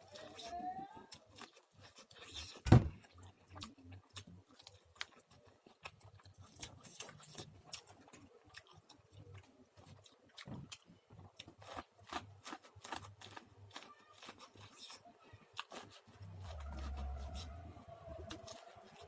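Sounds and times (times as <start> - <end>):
popcorn crunching: 0.0 - 19.0
loud low thump: 2.7 - 3.0.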